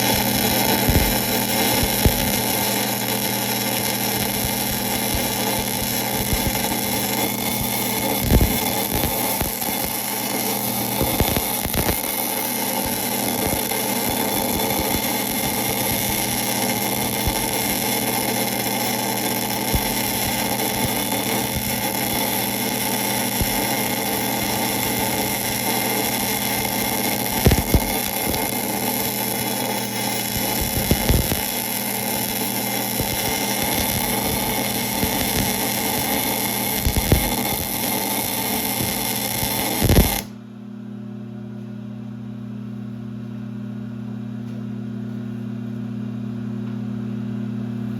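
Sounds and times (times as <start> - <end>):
lathe gear train humming: 0.0 - 40.3.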